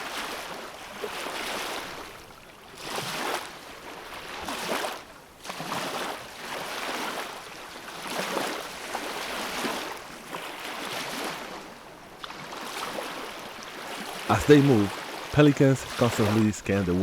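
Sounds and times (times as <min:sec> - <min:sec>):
ocean surf washing in: 0:14.0 - 0:17.0.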